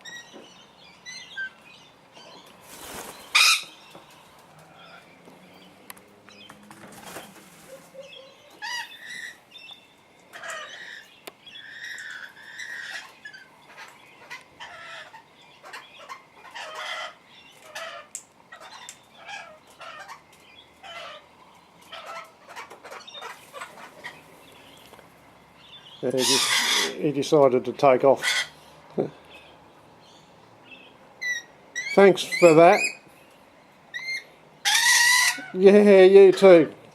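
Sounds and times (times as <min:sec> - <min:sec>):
parrots chirping and squawking: 0:00.0 - 0:36.8
wing flapping: 0:02.6 - 0:04.7, 0:06.5 - 0:08.0.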